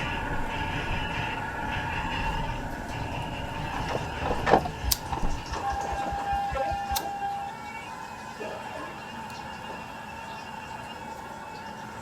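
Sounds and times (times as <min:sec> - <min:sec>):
thin steady tone: 0:04.7 - 0:07.5.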